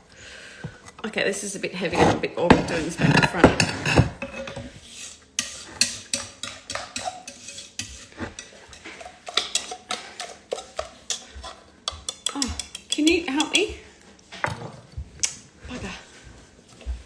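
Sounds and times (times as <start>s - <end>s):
utensil scraping heavy pot: 0.5s - 13.6s.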